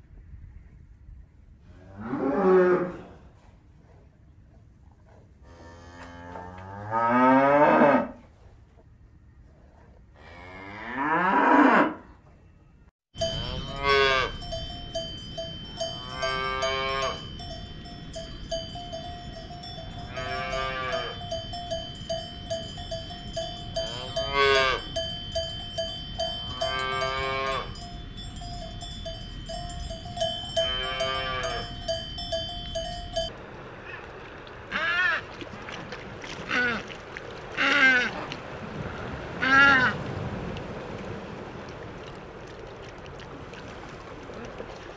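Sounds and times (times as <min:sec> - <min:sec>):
cow mooing: 0:01.7 - 0:03.2, 0:05.4 - 0:08.2, 0:10.2 - 0:12.1, 0:13.2 - 0:14.4, 0:15.9 - 0:17.3, 0:20.0 - 0:21.3, 0:23.8 - 0:25.0, 0:26.5 - 0:27.8, 0:30.5 - 0:31.9
cowbells clanging: 0:13.2 - 0:33.4.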